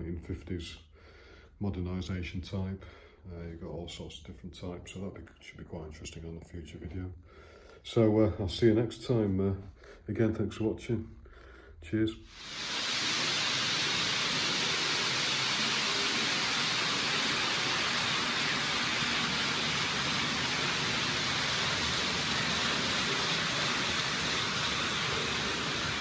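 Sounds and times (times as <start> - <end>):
steady hiss: 12.3 - 26.0.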